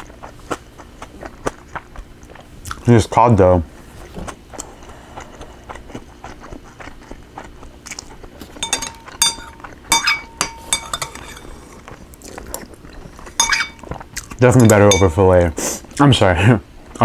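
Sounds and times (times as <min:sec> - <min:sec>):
person chewing food: 0:00.0 - 0:02.8, 0:04.5 - 0:09.9
utensils clinking against dish: 0:08.4 - 0:11.8, 0:13.4 - 0:15.5.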